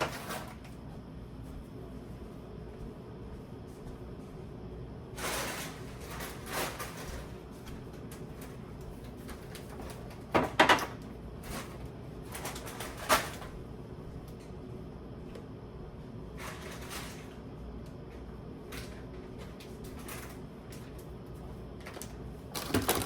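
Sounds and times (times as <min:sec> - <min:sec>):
groceries rustling: 0:21.8 - 0:23.0.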